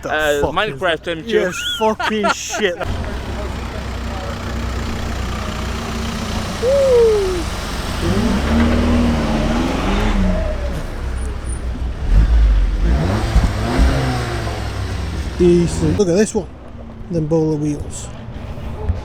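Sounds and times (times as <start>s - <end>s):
distant voices: 0.0s - 17.0s
car engine running: 2.8s - 16.2s.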